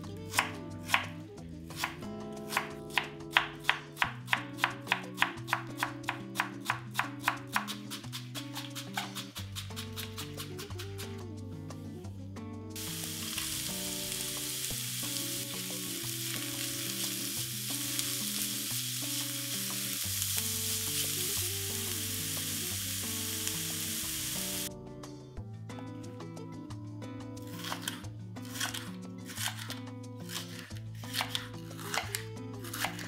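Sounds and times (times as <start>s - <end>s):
background music: 0.0s - 33.0s
vegetables sizzling in oil: 12.8s - 24.7s.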